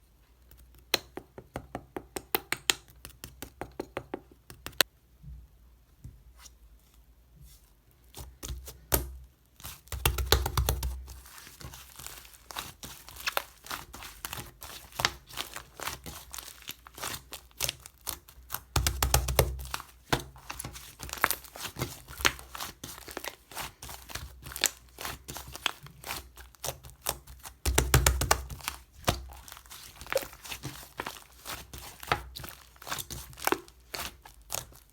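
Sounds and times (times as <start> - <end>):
slime squishing: 8.1 - 34.9
slime crackling and popping: 8.9 - 34.9.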